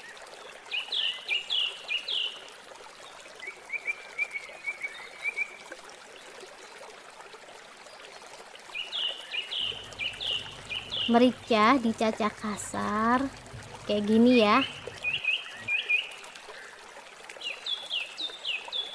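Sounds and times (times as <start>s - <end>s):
bird chirping: 8.9s - 11.6s, 14.5s - 16.2s
faint steady hiss: 9.3s - 16.7s.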